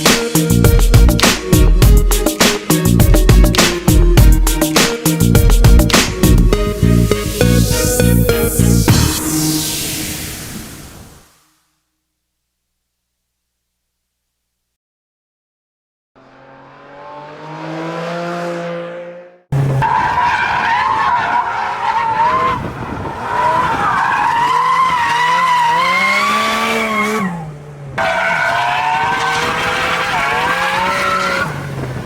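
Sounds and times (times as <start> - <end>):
car engine revving: 16.2 - 32.0.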